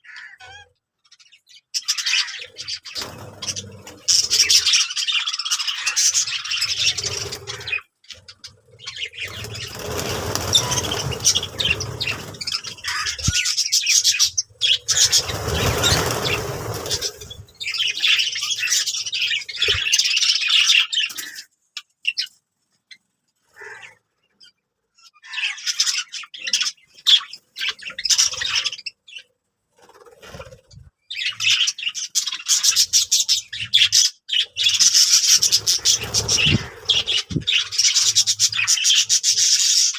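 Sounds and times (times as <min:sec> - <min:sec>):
budgerigars chirping: 0:00.0 - 0:21.4, 0:31.2 - 0:39.9.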